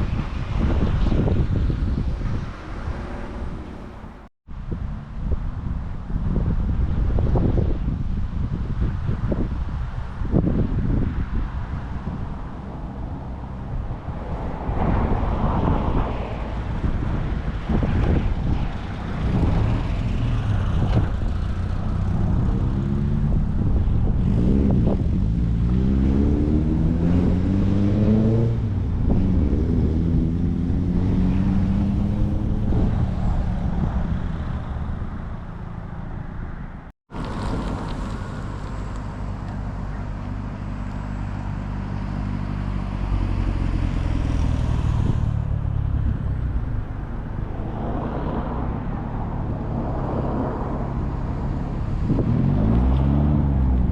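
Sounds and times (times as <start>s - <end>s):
car engines accelerating past: 11.6s - 36.3s, 37.2s - 53.9s.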